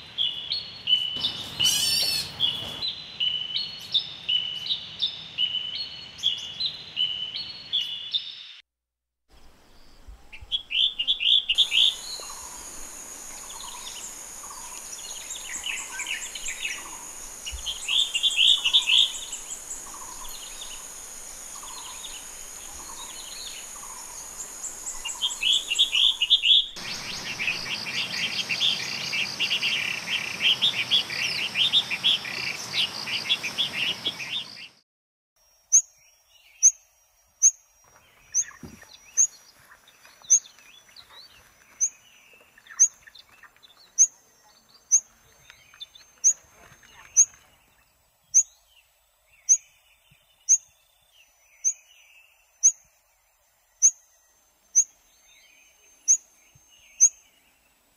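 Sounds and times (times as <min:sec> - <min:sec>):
birds chirping and chattering: 0:01.0 - 0:02.8, 0:10.6 - 0:34.7, 0:37.9 - 0:48.7
bird repeating call: 0:01.2 - 0:02.8
steady high hiss: 0:11.0 - 0:34.4.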